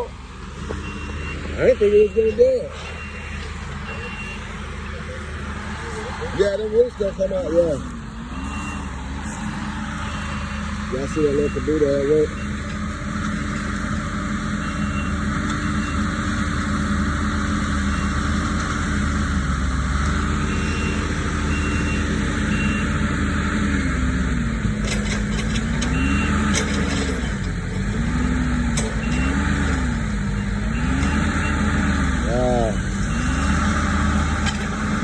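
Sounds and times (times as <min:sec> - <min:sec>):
backup alarm beeping: 0:00.0 - 0:05.4, 0:08.3 - 0:09.1, 0:10.0 - 0:12.7, 0:14.6 - 0:16.1, 0:20.4 - 0:23.0, 0:25.9 - 0:26.6, 0:30.3 - 0:33.7
diesel engine working under load: 0:00.0 - 0:35.0.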